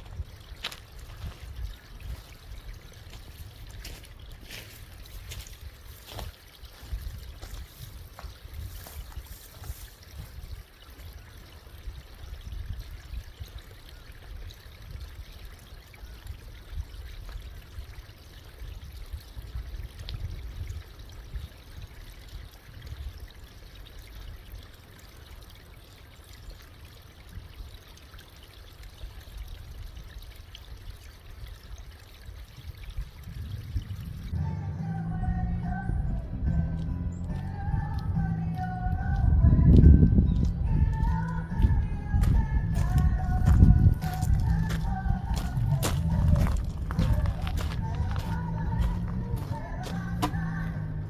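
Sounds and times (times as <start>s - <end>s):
uneven low rumble: 33.4s - 51.0s.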